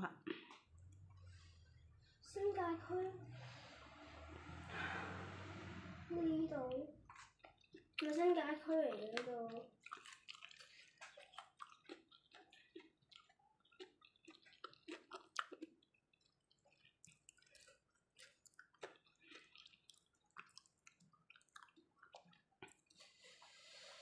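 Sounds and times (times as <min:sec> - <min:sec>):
wet chewing: 0:00.2 - 0:02.2, 0:06.7 - 0:23.7.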